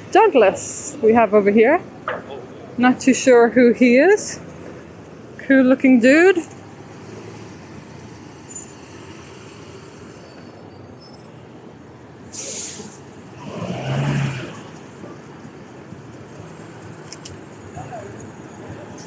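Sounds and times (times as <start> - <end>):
hum of traffic: 0.0 - 19.0
air brake hiss: 12.3 - 13.0
large vehicle engine passing: 12.5 - 15.2.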